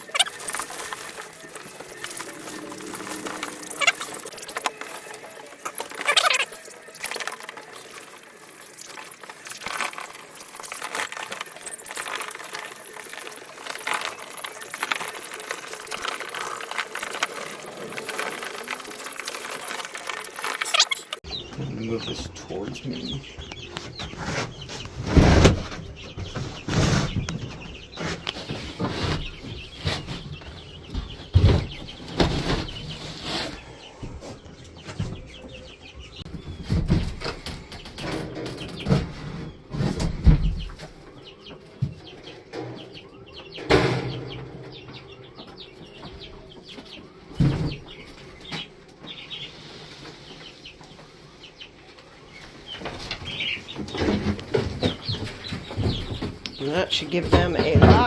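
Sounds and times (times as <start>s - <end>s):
chicks flapping wings: 0.0s - 21.8s, 22.8s - 58.0s
chicks cheeping: 0.0s - 58.0s.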